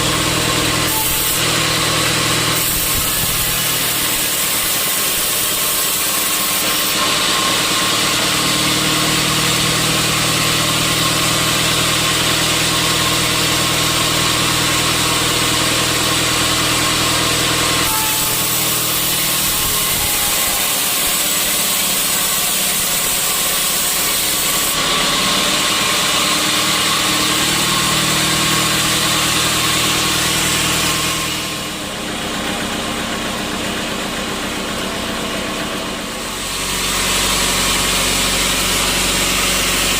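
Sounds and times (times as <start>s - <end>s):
sawmill saw machinery running: 0.0s - 39.9s.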